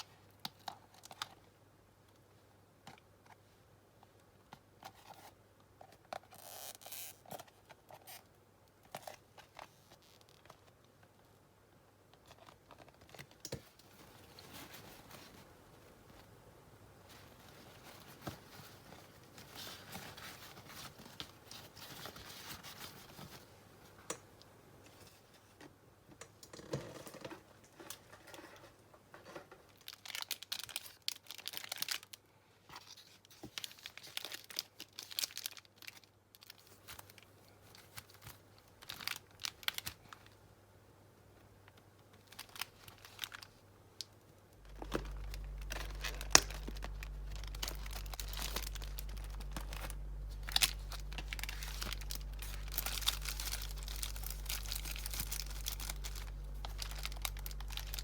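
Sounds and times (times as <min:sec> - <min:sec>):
hands rustling and crinkling materials: 0:12.2 - 0:24.2, 0:27.6 - 0:40.4, 0:41.6 - 0:58.0
steady low hum: 0:44.4 - 0:58.0.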